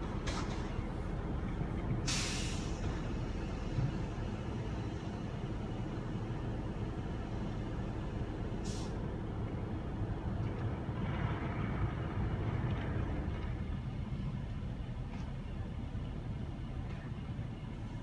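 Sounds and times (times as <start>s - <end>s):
sharp hiss of air: 2.1s - 2.8s.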